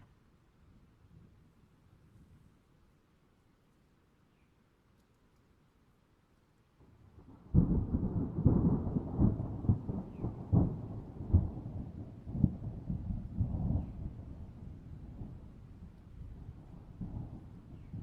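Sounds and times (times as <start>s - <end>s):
thunder clap and rumble: 7.2s - 18.0s.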